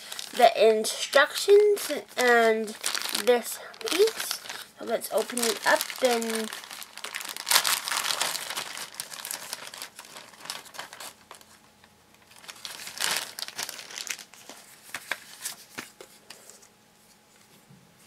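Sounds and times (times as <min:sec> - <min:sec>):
toy packaging crinkling: 0:00.0 - 0:00.7, 0:01.3 - 0:11.6, 0:12.2 - 0:15.6.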